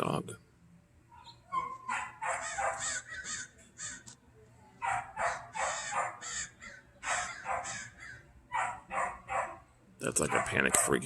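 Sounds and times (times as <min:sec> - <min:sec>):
dog barking frantically: 0:01.6 - 0:03.0, 0:04.8 - 0:06.3, 0:07.0 - 0:07.9, 0:08.5 - 0:09.6, 0:10.2 - 0:11.0.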